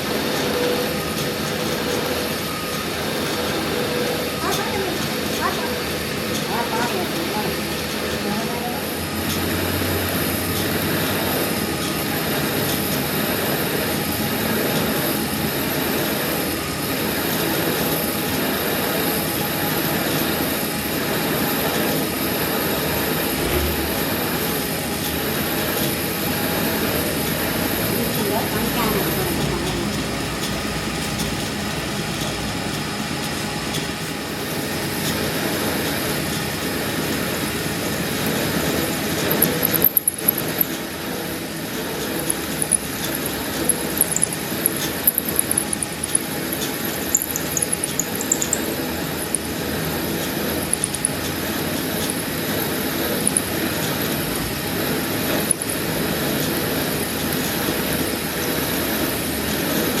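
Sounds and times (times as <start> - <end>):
workshop machinery running: 0.0 - 60.0
sharp metallic clicks: 47.1 - 48.7, 50.7 - 51.2.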